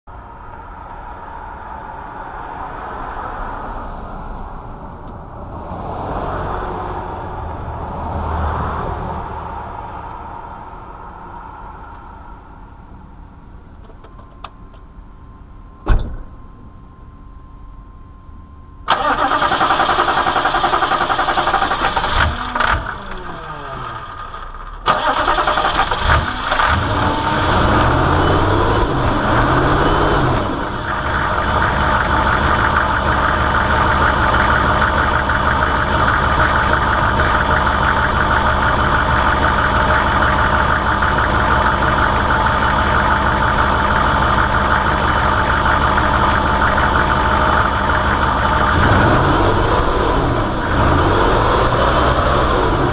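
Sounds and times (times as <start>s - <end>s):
car engine starting and idling: 18.8s - 52.9s.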